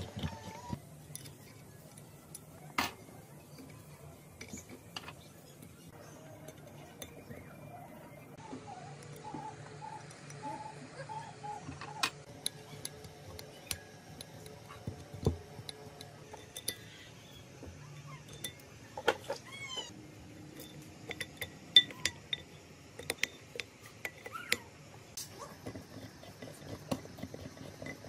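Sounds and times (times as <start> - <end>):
metal parts and tools clinking: 20.5 - 24.3.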